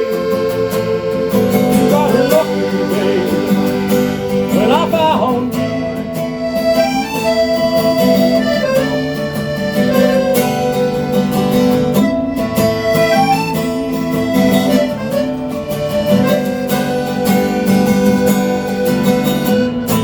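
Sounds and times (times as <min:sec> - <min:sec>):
sliding melody line: 0:00.0 - 0:20.0
strummed guitar: 0:00.0 - 0:20.0.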